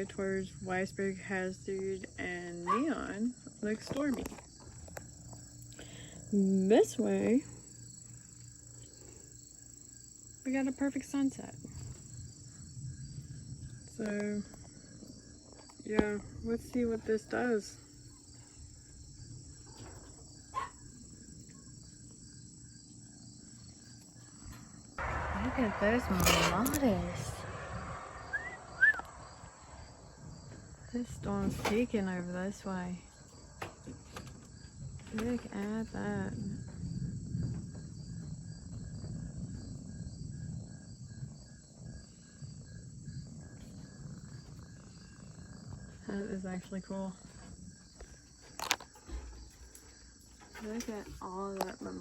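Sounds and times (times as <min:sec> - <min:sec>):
crickets chirping: 0:00.0 - 0:52.0
insect chorus trilling: 0:00.0 - 0:52.0
steady low rumble: 0:24.9 - 0:47.7
brief sharp sound: 0:25.0 - 0:30.0.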